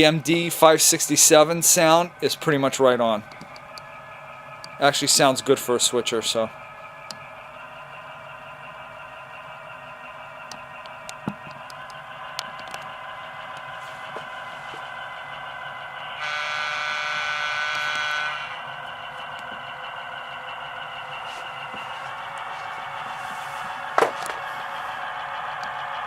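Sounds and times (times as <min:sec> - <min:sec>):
horn blast: 0:16.2 - 0:18.7.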